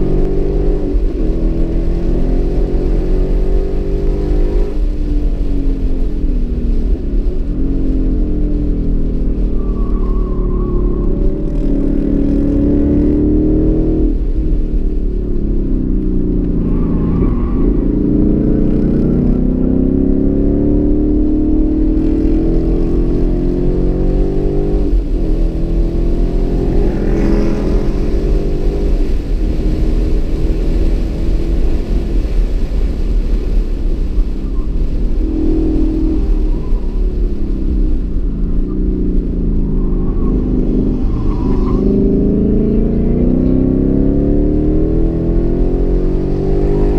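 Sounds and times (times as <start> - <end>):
car engine revving hard: 17.6 - 32.3.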